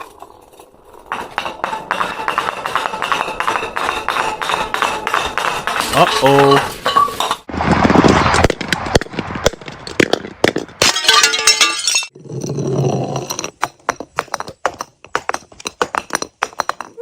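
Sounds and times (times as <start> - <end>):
glass breaking: 10.8 - 12.2
glass pieces clinking: 10.8 - 12.5.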